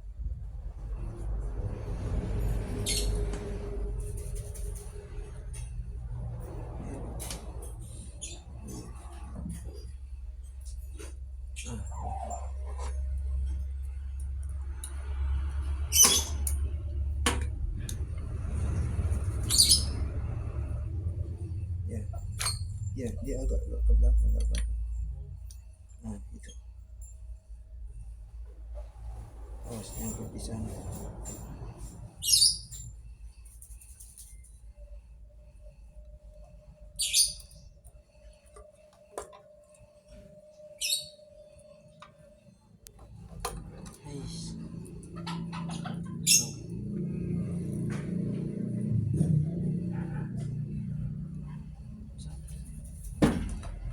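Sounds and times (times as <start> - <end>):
steady low hum: 0.0 - 53.9
short squeaky rattle: 2.8 - 5.0, 15.9 - 16.5, 19.4 - 20.0, 29.7 - 33.0, 45.2 - 46.7.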